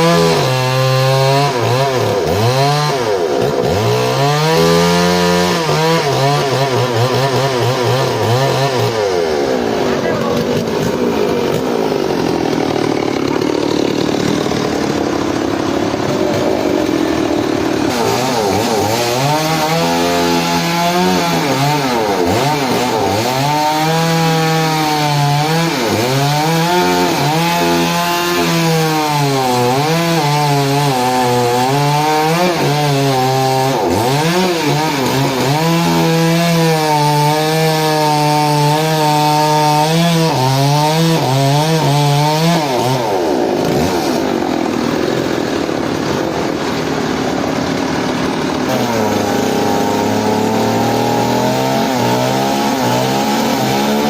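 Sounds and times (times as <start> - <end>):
chainsaw cutting through log: 0.0 - 54.0
dense rasping noise: 0.0 - 54.0.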